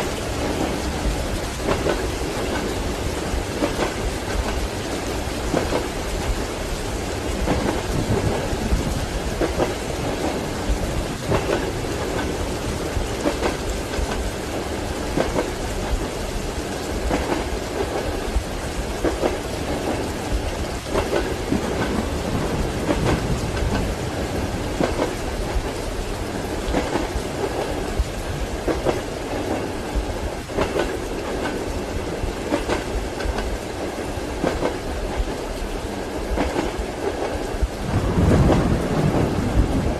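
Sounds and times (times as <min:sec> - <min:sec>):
rolling thunder: 0:00.0 - 0:33.4, 0:36.3 - 0:39.9
train wheels clicking over rail joints: 0:00.0 - 0:37.8
rain: 0:00.0 - 0:39.9
train carriage rumble: 0:00.0 - 0:39.9.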